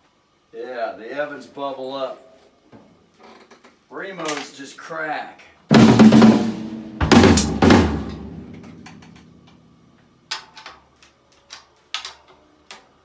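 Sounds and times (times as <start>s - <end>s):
drums struck and ringing: 5.7s - 9.3s.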